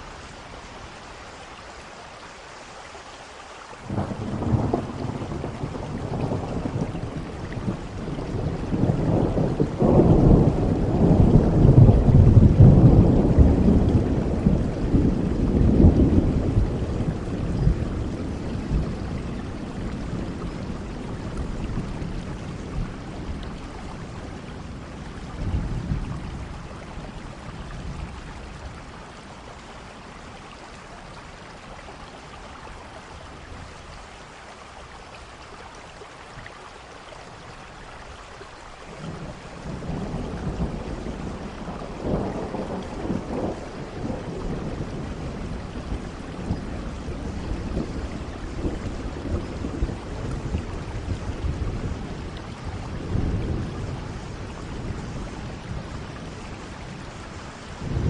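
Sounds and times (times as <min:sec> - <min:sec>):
heavy rain: 0:00.0 - 0:58.0
rolling thunder: 0:03.9 - 0:28.9, 0:39.0 - 0:58.0.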